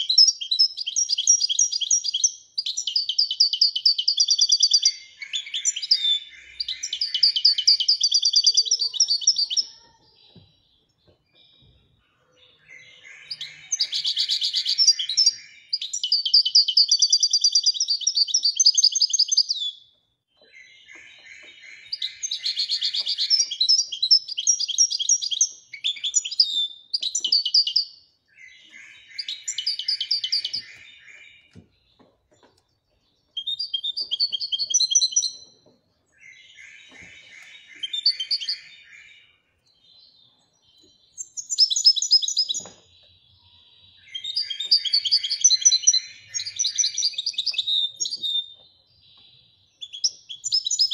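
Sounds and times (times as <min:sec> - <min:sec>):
goldfinch singing twittering trills: 0:12.6 - 0:50.9.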